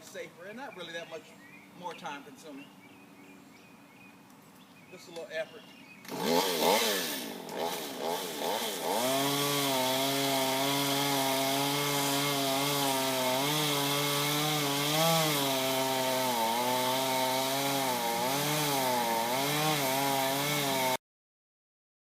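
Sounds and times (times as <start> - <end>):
chainsaw cutting wood: 6.0 - 21.0.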